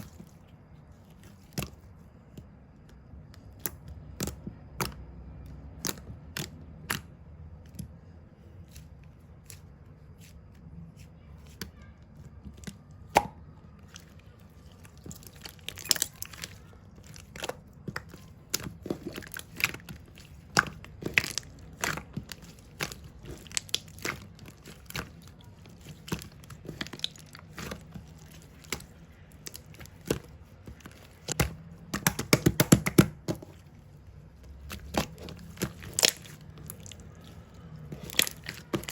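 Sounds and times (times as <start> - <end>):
crinkly crackling: 13.7 - 31.4, 33.4 - 38.9.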